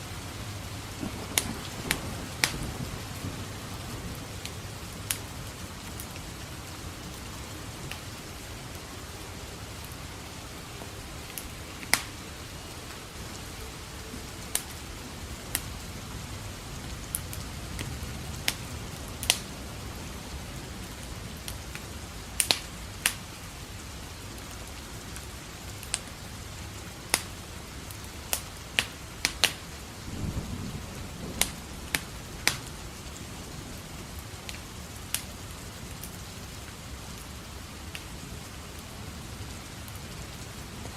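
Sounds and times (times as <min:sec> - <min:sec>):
low rumble of thunder: 0:00.0 - 0:23.0, 0:29.7 - 0:37.1
steady rain falling: 0:00.0 - 0:40.9
wood fire crackling and popping: 0:00.0 - 0:40.9.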